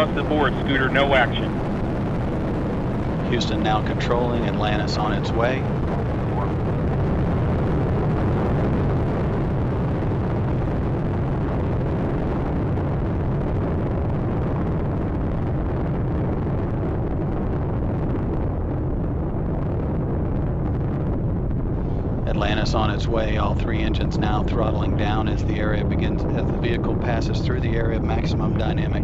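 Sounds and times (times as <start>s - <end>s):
rocket engines roaring: 0.0s - 29.0s.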